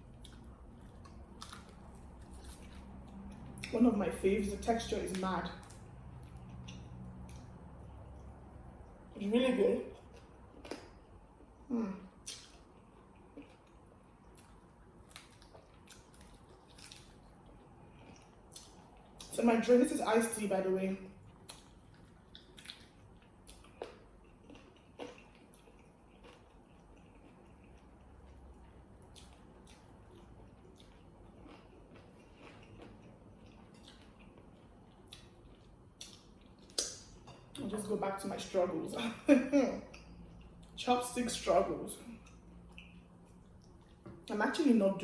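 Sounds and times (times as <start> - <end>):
person chewing wetly: 0.0 - 3.8, 5.4 - 9.0, 9.9 - 11.6, 12.2 - 19.3, 21.2 - 37.5, 42.1 - 44.1.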